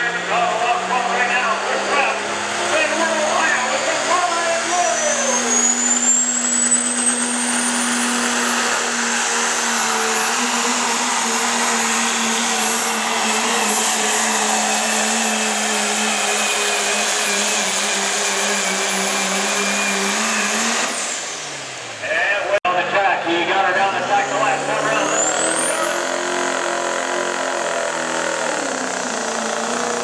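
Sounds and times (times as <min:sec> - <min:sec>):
diesel truck engine under load: 0:00.0 - 0:30.0
turbo whistle: 0:04.7 - 0:08.4.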